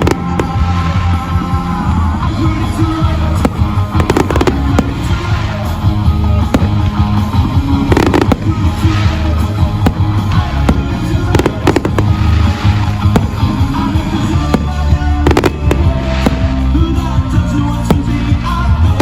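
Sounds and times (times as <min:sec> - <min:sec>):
fireworks bangs and crackles: 0:00.0 - 0:19.0
loud music with heavy bass: 0:00.0 - 0:19.0.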